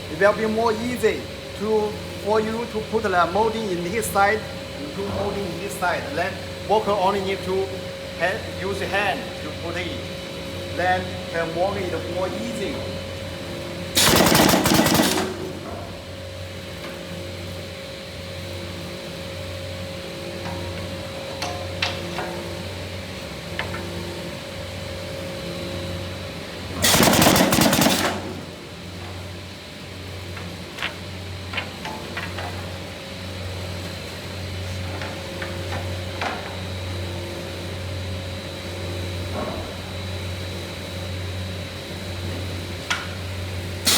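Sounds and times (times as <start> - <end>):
low machine hum: 0.0 - 31.6
machine humming: 12.4 - 18.4, 26.5 - 29.6
machine rapid clattering strokes: 14.0 - 15.9, 26.8 - 28.6.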